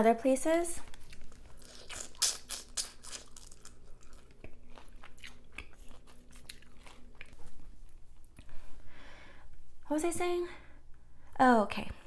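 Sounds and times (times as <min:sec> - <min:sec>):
chewing with crunches: 0:00.8 - 0:08.5
wet mouth clicks: 0:01.7 - 0:03.3.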